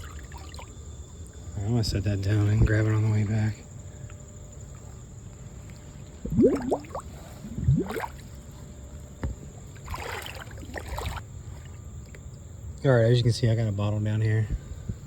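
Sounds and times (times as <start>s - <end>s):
river water sloshing and gurgling: 0.0s - 1.5s, 4.0s - 12.5s
rising water glugs: 6.1s - 12.3s
splashing rush of water: 6.3s - 8.2s.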